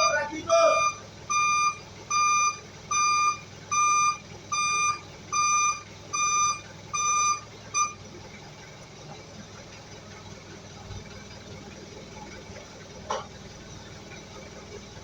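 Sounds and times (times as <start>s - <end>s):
electronic warning beeps: 0.0s - 8.0s.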